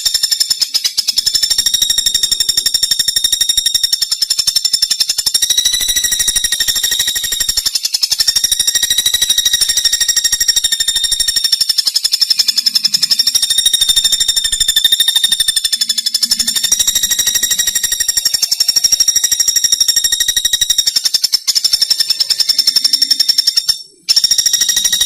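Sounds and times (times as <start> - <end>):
woodpecker rattling trill: 0.0 - 25.0.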